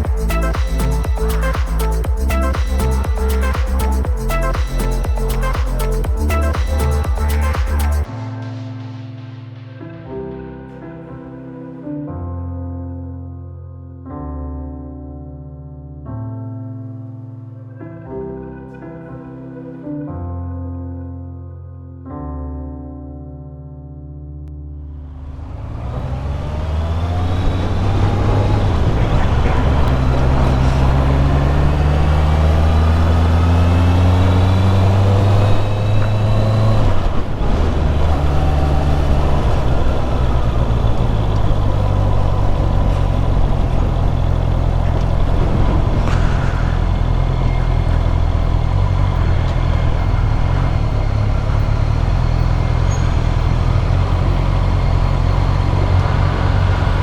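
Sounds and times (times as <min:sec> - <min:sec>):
wind and road noise: 0:25.0 - 0:57.0
motorcycle engine revving: 0:25.2 - 0:57.0.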